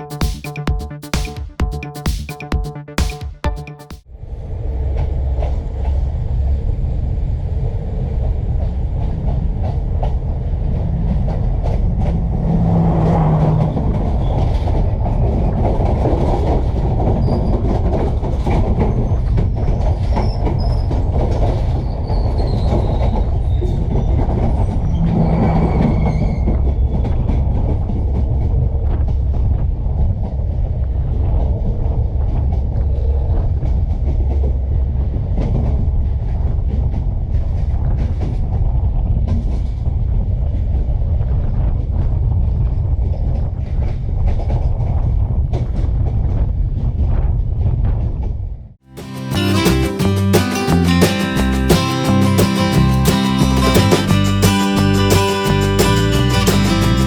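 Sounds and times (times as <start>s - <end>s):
train wheels rumbling on rails: 4.8s - 48.5s
high wheel squeal: 24.8s - 26.7s.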